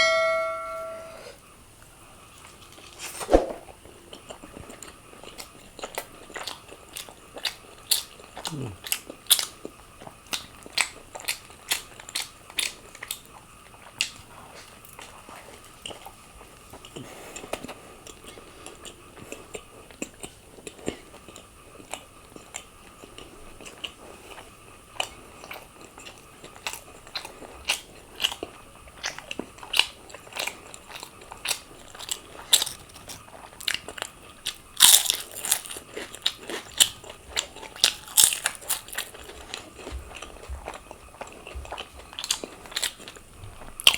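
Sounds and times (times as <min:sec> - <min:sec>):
pizza crust crunching: 0:25.0 - 0:43.9.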